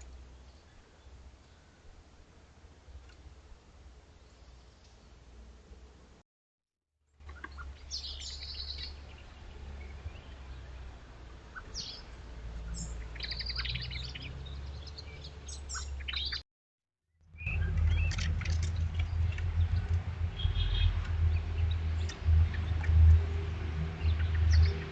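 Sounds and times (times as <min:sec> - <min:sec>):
small birds chirping: 0:07.2 - 0:16.4, 0:17.3 - 0:24.9
steady low rumble: 0:17.4 - 0:24.9.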